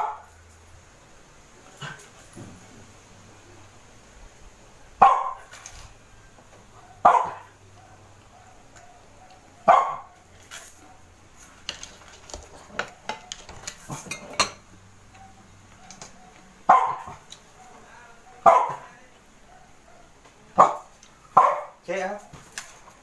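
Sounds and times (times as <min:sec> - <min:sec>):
dog barking: 0:00.0 - 0:00.3, 0:05.0 - 0:05.5, 0:06.8 - 0:10.2, 0:15.2 - 0:21.8
glass dishes and cutlery clinking: 0:11.6 - 0:14.7.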